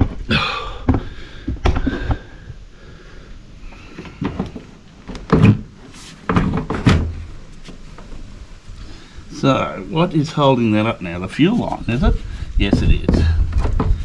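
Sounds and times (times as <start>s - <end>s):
knocks and thuds of handled gear: 12.6s - 14.0s.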